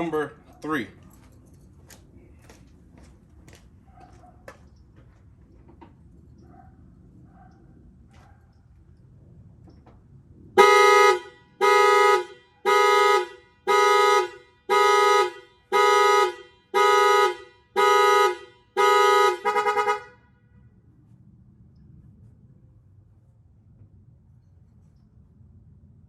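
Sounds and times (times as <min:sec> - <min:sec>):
car alarm horn honking: 0:10.6 - 0:20.3.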